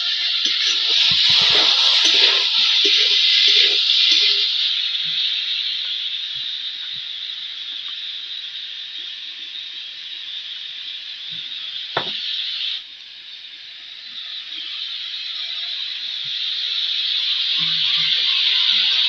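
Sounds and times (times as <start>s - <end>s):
oil sizzling: 0.0s - 19.0s
sharp knock: 12.0s - 12.2s.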